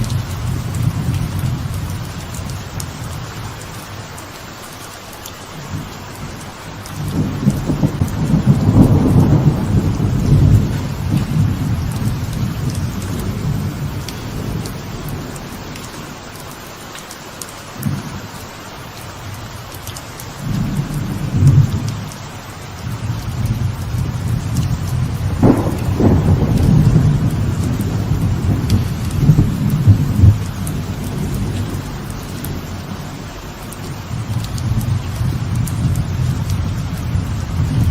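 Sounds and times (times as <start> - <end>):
light rain falling: 0.0 - 37.9
rolling thunder: 7.0 - 15.7, 20.4 - 22.0, 22.8 - 37.9.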